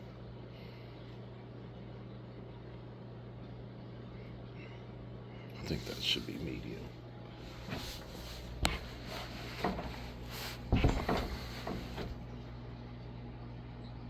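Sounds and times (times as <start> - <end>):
ceiling fan motor humming: 0.0 - 14.0
knocks and clatters: 7.6 - 12.3.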